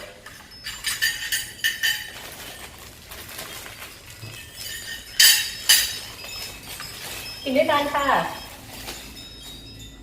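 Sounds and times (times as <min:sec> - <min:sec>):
cutlery clinking against plates: 0:00.3 - 0:02.7, 0:04.2 - 0:07.3.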